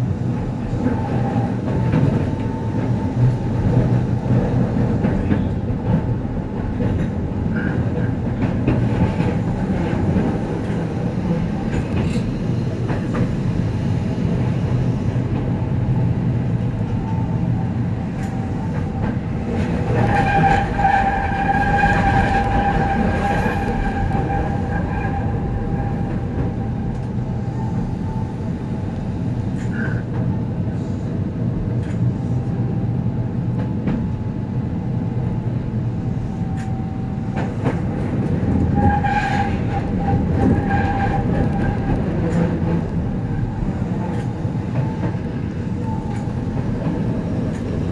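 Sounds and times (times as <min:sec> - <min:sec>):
train rumble: 0:00.0 - 0:47.9.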